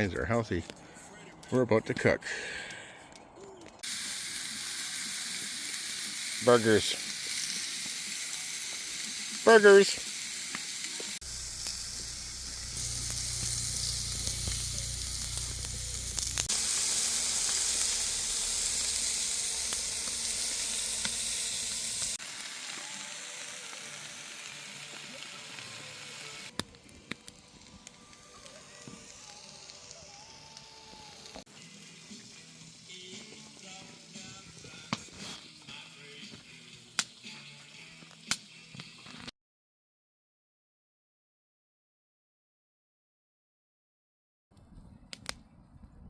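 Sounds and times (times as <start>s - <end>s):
burgers sizzling: 3.8s - 39.3s
low hum: 11.2s - 21.8s.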